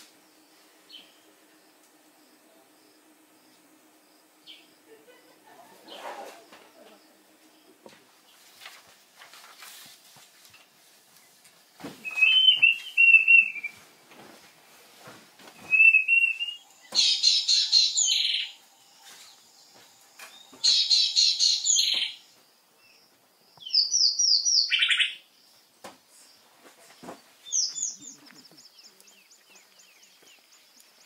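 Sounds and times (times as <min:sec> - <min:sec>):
wild birds calling: 0:12.0 - 0:13.8, 0:15.6 - 0:23.0.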